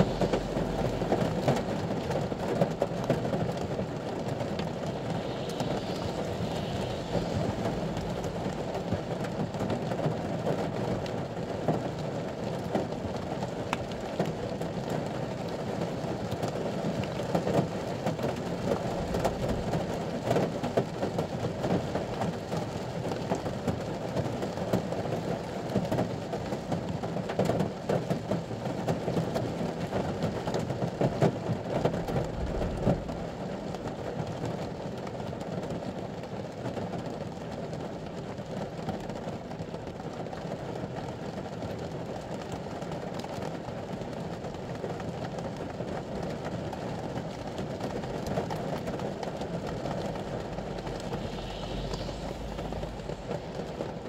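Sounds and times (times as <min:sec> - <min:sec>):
low rumble: 0:00.0 - 0:10.8, 0:18.2 - 0:21.0, 0:31.6 - 0:34.2, 0:47.9 - 0:54.0
rain drumming on vehicle roof: 0:07.8 - 0:52.2.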